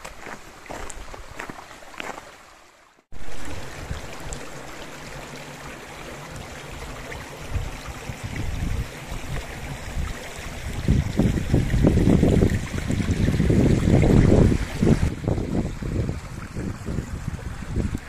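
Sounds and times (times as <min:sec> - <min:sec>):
footsteps: 0:00.0 - 0:02.2
mountain stream rushing: 0:00.0 - 0:18.0
wind rumble on microphone: 0:03.4 - 0:04.7, 0:06.3 - 0:18.0.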